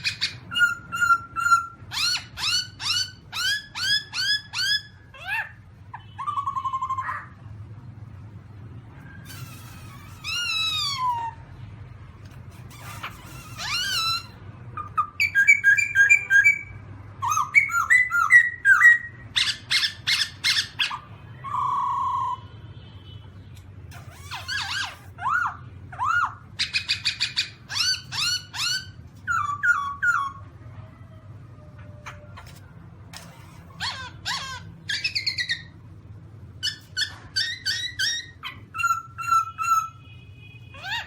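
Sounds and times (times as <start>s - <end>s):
bird singing whistled phrases: 13.6s - 20.7s.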